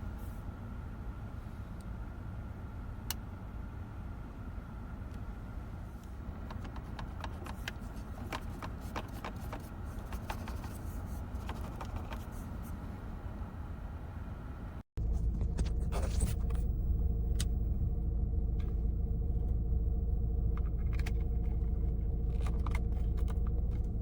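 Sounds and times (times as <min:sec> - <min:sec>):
car cabin rumble: 0:05.0 - 0:24.0.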